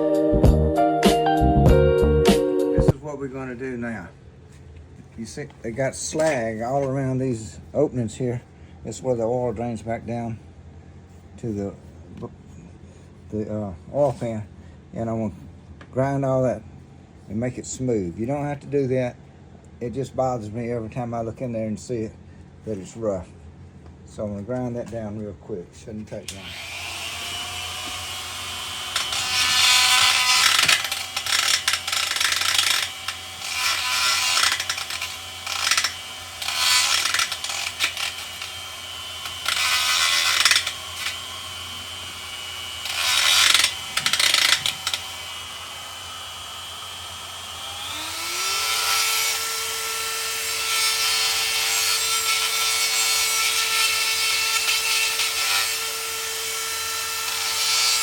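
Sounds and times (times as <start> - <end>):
hand grinder grinding metal: 26.3 - 58.0.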